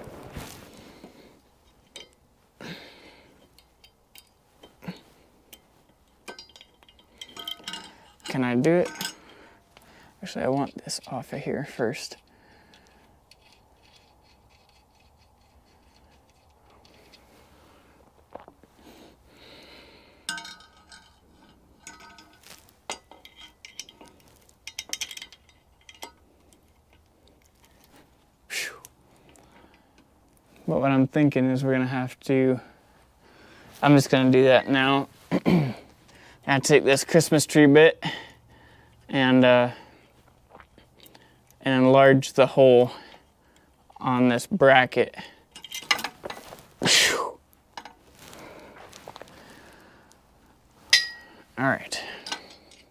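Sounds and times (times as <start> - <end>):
metallic clinks of tools and parts: 1.6 - 2.3, 3.3 - 17.4, 20.2 - 28.4, 45.0 - 46.8, 47.7 - 52.9
ringing metal clanks: 3.6 - 11.1, 20.2 - 26.2, 50.9 - 52.8.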